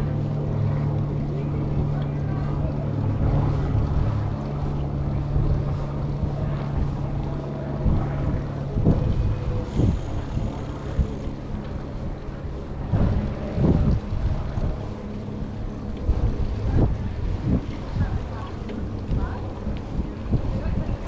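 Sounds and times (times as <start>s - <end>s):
steady low hum: 0.0s - 21.0s
wind rushing over microphone: 0.0s - 21.0s.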